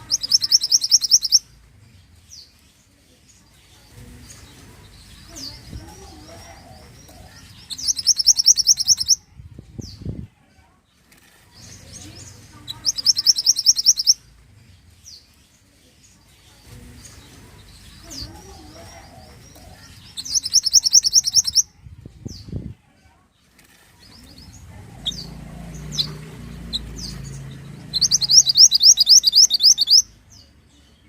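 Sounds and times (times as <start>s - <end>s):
bird chirping rapidly: 0.0s - 1.4s, 4.2s - 9.2s, 11.7s - 14.2s, 17.0s - 21.7s, 24.1s - 30.5s.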